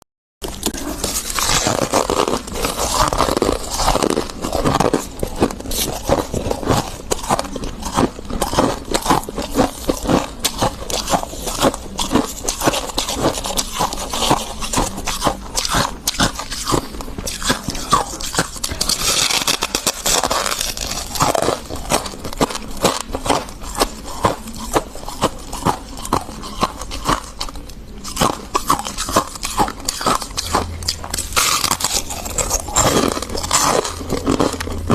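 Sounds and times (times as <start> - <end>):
frost crunching as chewed: 0.4 - 34.9.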